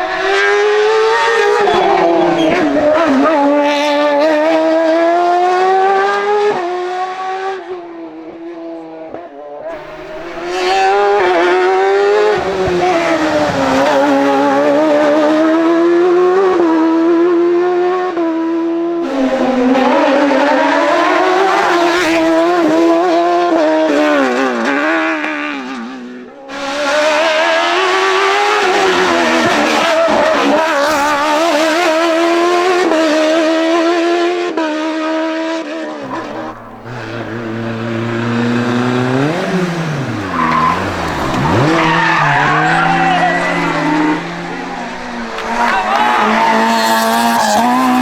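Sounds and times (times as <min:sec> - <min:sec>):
race car engines revving: 0:00.0 - 0:48.0
tyres squealing: 0:36.0 - 0:48.0.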